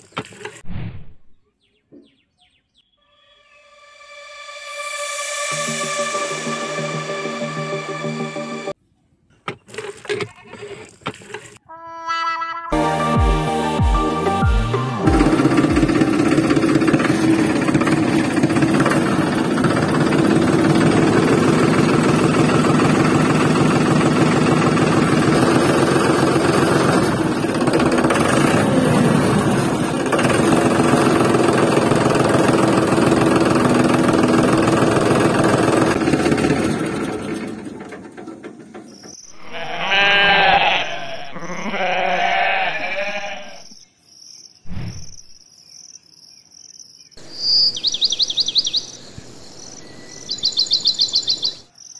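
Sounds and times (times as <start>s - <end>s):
engine running with fast pulse: 12.8s - 38.8s
sheep bleating: 39.4s - 43.7s
high insect chirping: 43.2s - 51.9s.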